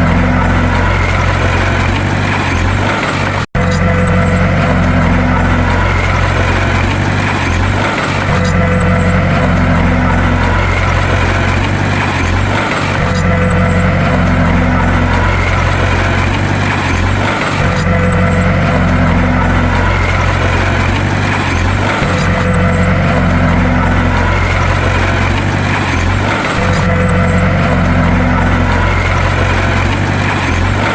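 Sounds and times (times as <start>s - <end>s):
bulldozer diesel engine drone: 0.0s - 30.9s.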